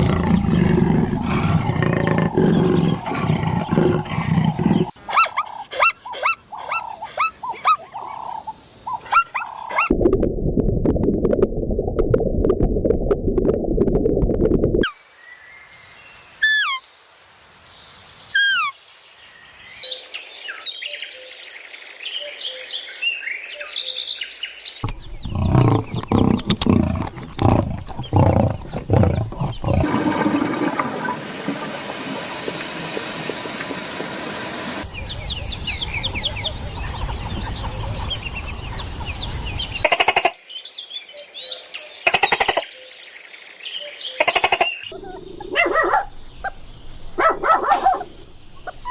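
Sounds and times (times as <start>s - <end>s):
bird calls and chirps: 0.1s - 9.9s, 18.3s - 29.8s, 34.8s - 48.9s
steady hissing: 30.9s - 34.9s.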